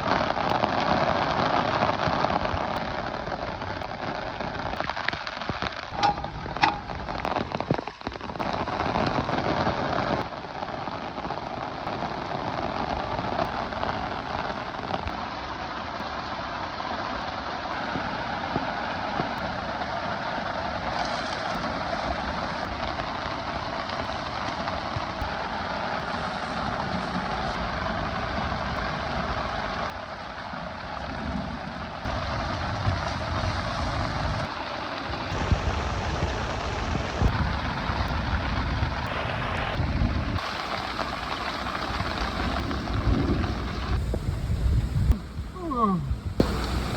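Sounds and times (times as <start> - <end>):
heavy rain pouring: 0.0 - 46.9
sharp knocks: 6.0 - 7.2.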